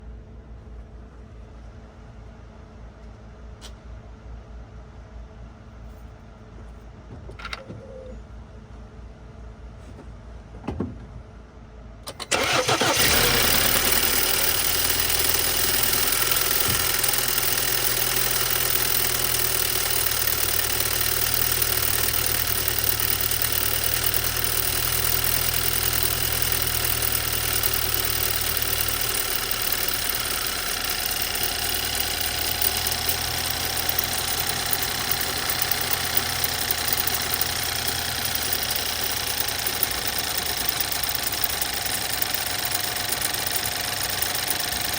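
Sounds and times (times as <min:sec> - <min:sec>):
engine cranking: 0:12.1 - 0:44.9
loud engine rattle: 0:12.1 - 0:44.9
engine fast idle: 0:12.2 - 0:44.9.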